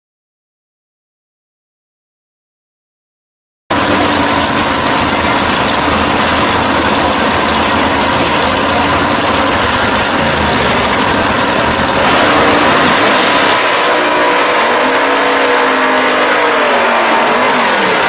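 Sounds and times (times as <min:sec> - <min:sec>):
car engines idling loudly: 0:03.7 - 0:18.0.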